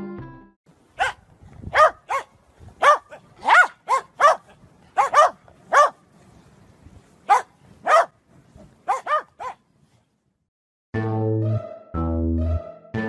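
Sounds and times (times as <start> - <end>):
dog barking: 1.0 - 6.0, 7.3 - 8.2, 8.8 - 9.6.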